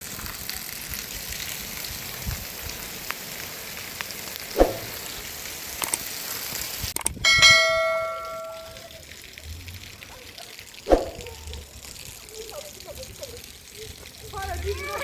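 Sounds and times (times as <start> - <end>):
struck metal object ringing: 7.2 - 8.9.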